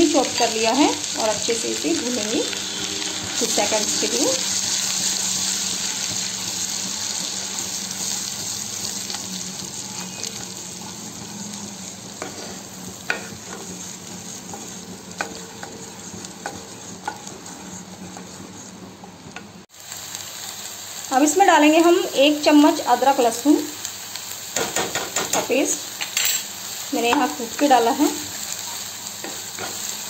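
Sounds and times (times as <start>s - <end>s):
onion paste sizzling in butter: 0.0s - 30.0s
spatula tapping pan: 12.2s - 18.7s, 24.6s - 25.6s.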